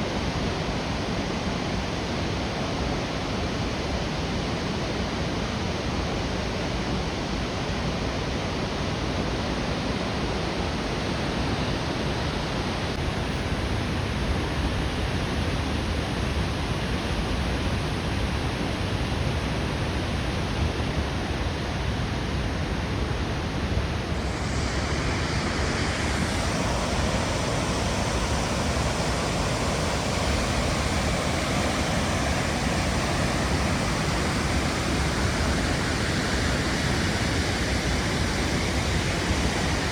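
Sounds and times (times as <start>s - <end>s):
flowing water rushing: 23.8s - 39.9s.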